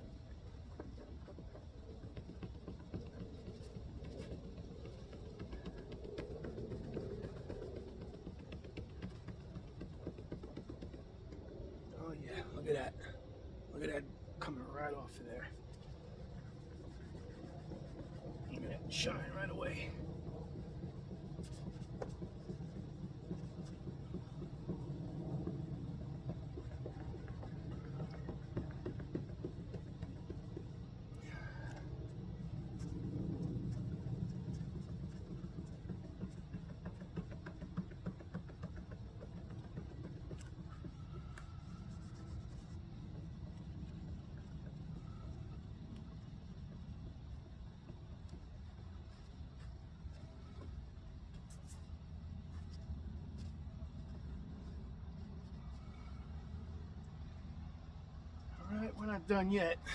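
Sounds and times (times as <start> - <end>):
cloth rubbing on plastic: 15.1 - 30.9, 32.4 - 56.4
wipe scrubbing plastic lens: 15.1 - 56.7.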